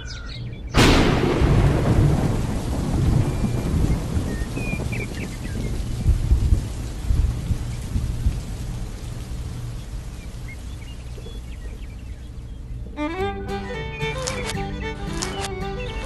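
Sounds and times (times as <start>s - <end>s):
rain falling: 0.0s - 16.0s
low rumbling thunder: 0.8s - 12.2s.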